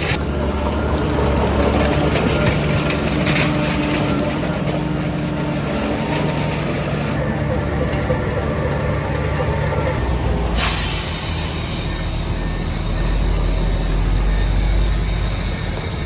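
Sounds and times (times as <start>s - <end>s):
heavy diesel engine drone: 0.0s - 16.0s
short hiss: 10.6s - 12.6s.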